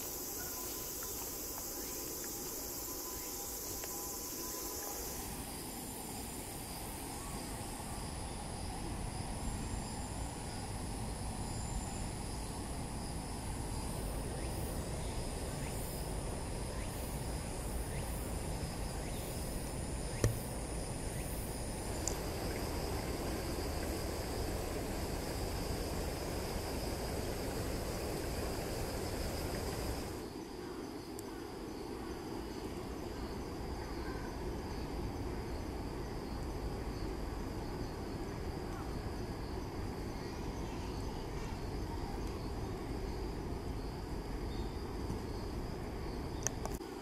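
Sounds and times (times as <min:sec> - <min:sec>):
crickets trilling: 0:00.0 - 0:47.0
low background rumble: 0:19.6 - 0:30.2.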